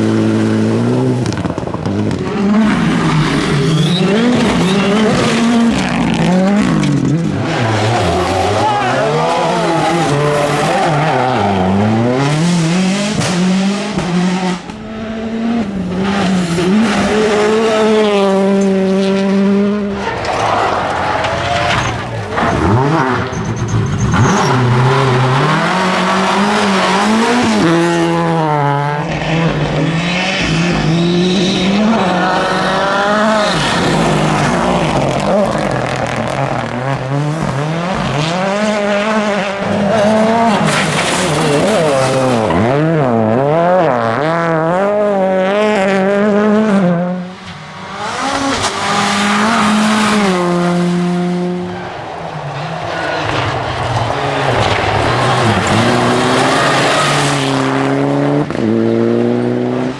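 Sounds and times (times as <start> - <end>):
rally car engines revving: 0.0 - 59.9
tyres squealing and skidding: 2.6 - 12.8, 19.8 - 27.9, 29.1 - 37.1, 51.6 - 58.0.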